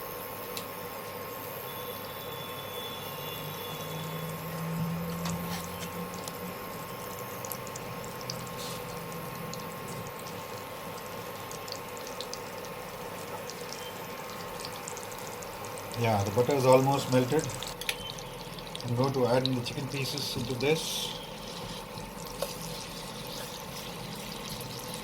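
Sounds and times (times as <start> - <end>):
steady background hum: 0.0 - 25.0
butter sizzling in a pan: 0.2 - 25.0.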